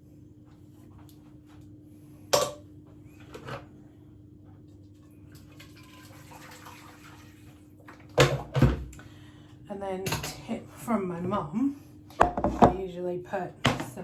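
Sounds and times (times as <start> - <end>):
metal pan clattering: 2.4 - 2.6
water running from tap: 5.4 - 8.0.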